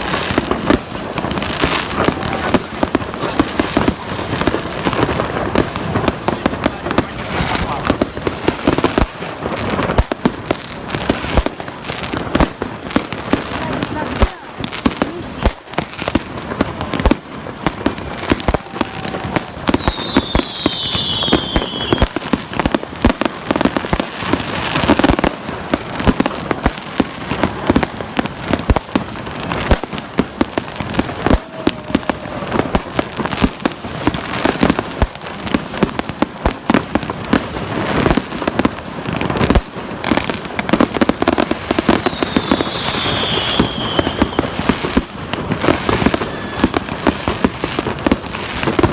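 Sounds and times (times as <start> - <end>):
fireworks bangs and crackles: 0.0 - 48.9
falling firework whistle: 18.1 - 22.5, 41.7 - 44.8, 45.8 - 47.2.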